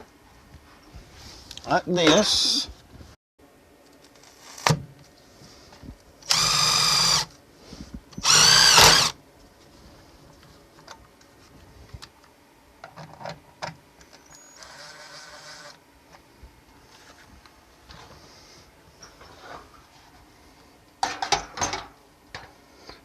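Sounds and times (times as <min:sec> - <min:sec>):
power drill running: 0:06.2 - 0:07.3, 0:08.2 - 0:09.2, 0:14.6 - 0:15.8.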